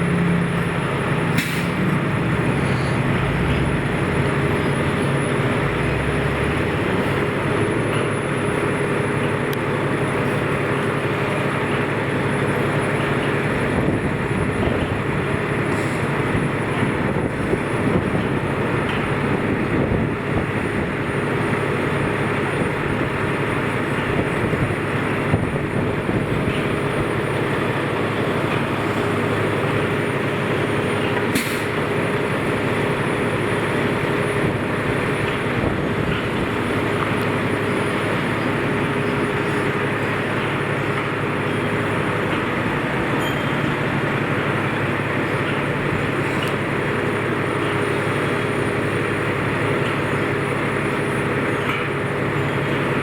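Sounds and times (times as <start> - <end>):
street vehicle noise: 0.0 - 53.0
sharp click: 1.4 - 1.7.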